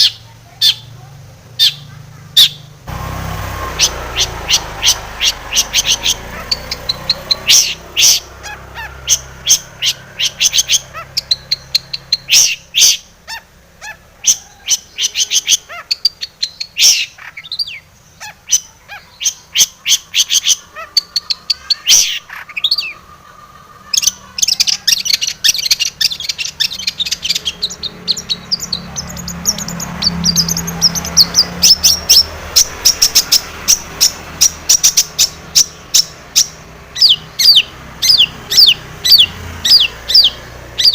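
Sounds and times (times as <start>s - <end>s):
shrike singing sharp chattering notes: 1.6s - 13.2s.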